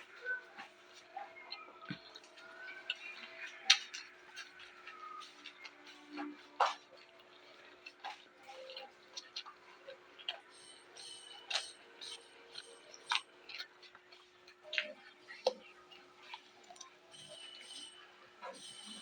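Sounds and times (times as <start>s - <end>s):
crunching raw vegetables: 0.2s - 17.6s.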